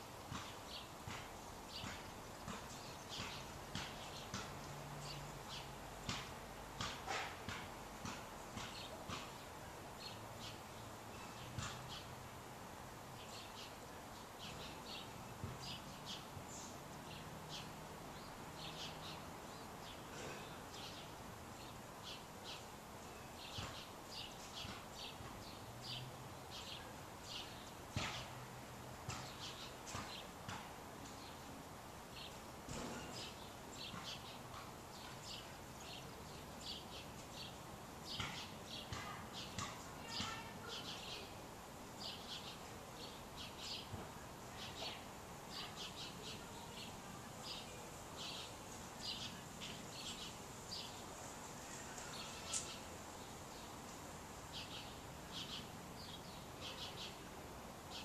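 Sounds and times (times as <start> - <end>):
faint background hiss: 0.0 - 58.0
birds chirping: 0.3 - 57.3.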